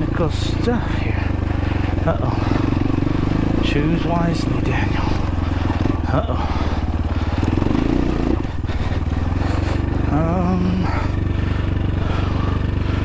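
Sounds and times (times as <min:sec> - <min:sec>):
wordless vocal sound: 0:00.0 - 0:06.9, 0:09.4 - 0:12.8
dirt bike engine running: 0:00.0 - 0:13.0.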